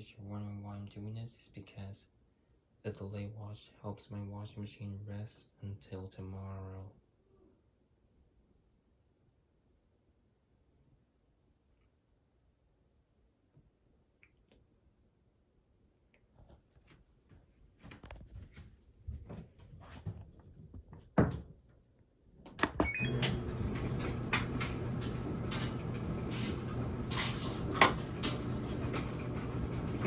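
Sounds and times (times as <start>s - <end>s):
washing machine door and control clicks: 22.5s - 30.0s
mechanical hum with ticks: 22.6s - 30.0s.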